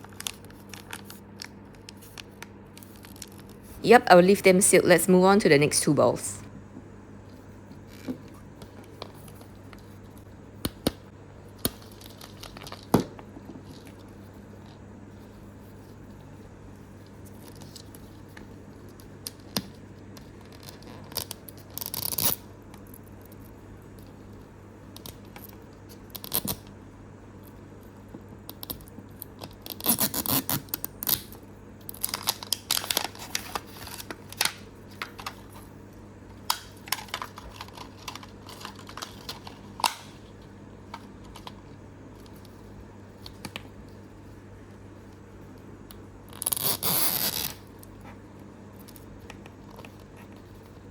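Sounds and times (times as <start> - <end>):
packaging crinkling: 31.9 - 35.7, 36.7 - 40.0.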